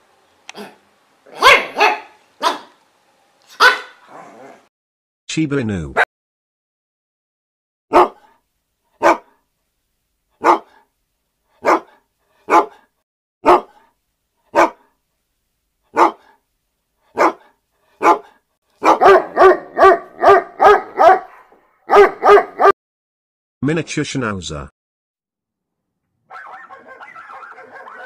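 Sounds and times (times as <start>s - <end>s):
dog barking: 0.6s - 2.8s, 3.5s - 4.1s, 7.9s - 8.4s, 9.0s - 9.4s, 10.4s - 10.9s, 11.5s - 15.0s, 15.9s - 16.4s, 17.1s - 22.8s, 26.3s - 28.0s.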